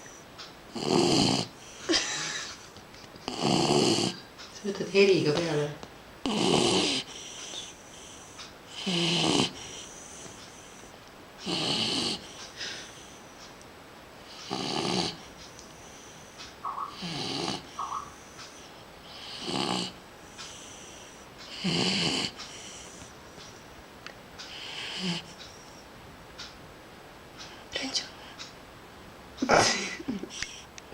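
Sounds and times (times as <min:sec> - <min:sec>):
dog snoring: 0:00.0 - 0:01.6, 0:03.3 - 0:04.2, 0:06.2 - 0:10.8, 0:11.4 - 0:12.4, 0:14.2 - 0:23.2, 0:24.4 - 0:25.8.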